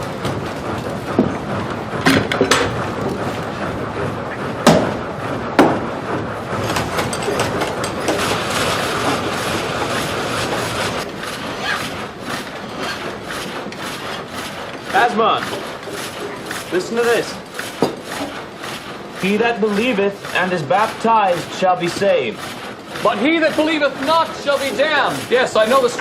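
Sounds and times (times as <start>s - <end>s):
machinery clattering rumble: 0.0s - 26.0s
sharp knocks: 2.0s - 3.2s, 4.6s - 5.0s, 5.6s - 5.9s, 6.6s - 19.0s.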